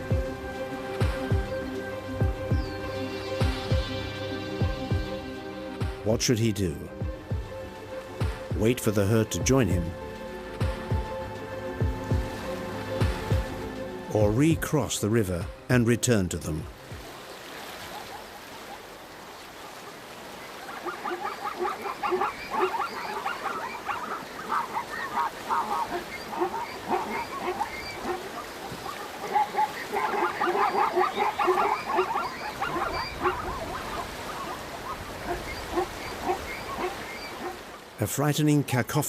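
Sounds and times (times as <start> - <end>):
zebras barking: 19.8 - 37.9.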